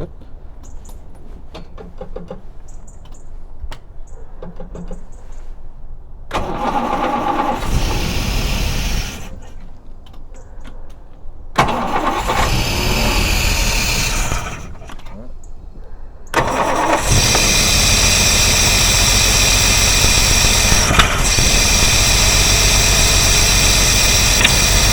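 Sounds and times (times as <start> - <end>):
starter cranking: 6.3 - 9.6, 11.6 - 15.2, 16.4 - 24.9
car engine running: 6.4 - 9.5, 11.6 - 15.2, 16.4 - 24.9
clicks: 16.4 - 24.9.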